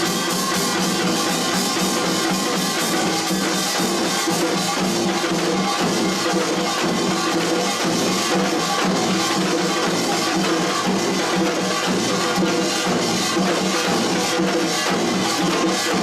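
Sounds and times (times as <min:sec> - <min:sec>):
drum strokes: 0:00.0 - 0:16.0.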